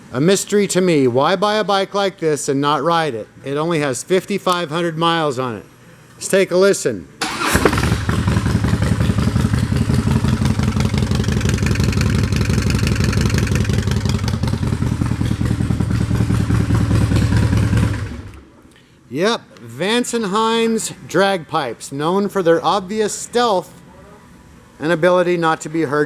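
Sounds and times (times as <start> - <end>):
motorcycle engine with open exhaust: 7.4 - 18.5.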